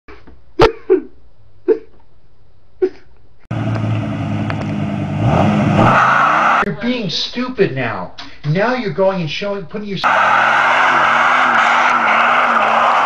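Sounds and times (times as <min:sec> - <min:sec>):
spinning tyres hissing: 0:03.5 - 0:06.7, 0:10.0 - 0:13.0
truck engine at high revs: 0:03.5 - 0:06.7, 0:10.1 - 0:13.0.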